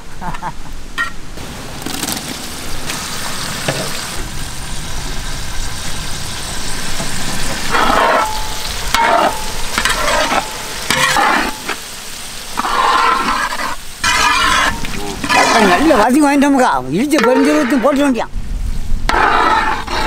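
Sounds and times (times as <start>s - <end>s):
vegetables sizzling in hot oil: 1.4s - 17.4s
metal ladle scraping pot: 7.0s - 11.8s, 12.6s - 16.1s, 19.1s - 20.0s.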